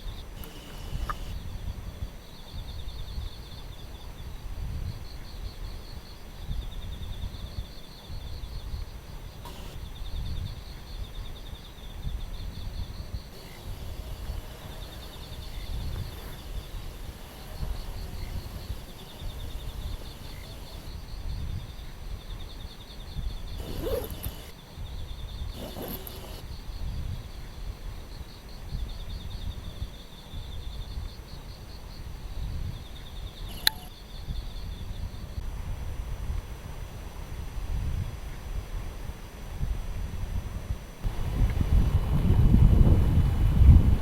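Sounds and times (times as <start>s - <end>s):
high pulsing chirping: 0.0s - 1.5s, 4.9s - 27.4s, 28.1s - 35.3s
wind gusting against microphone: 0.0s - 44.0s
short calls: 9.4s - 9.9s, 13.3s - 21.0s, 23.6s - 24.6s, 25.6s - 26.4s.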